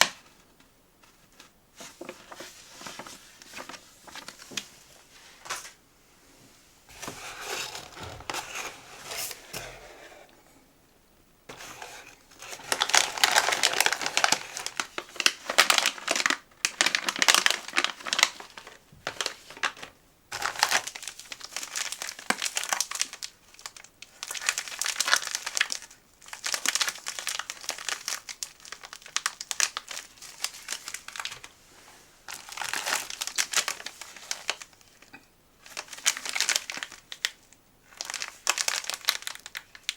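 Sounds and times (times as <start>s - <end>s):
plastic packaging crinkling: 6.9s - 10.3s, 11.5s - 31.5s, 32.2s - 39.9s.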